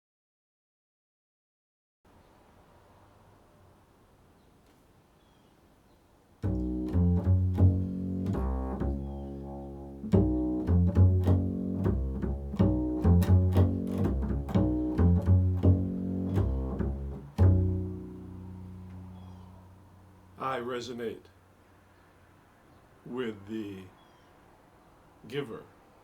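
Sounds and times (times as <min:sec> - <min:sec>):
deep plucked string notes: 0:06.4 - 0:20.4.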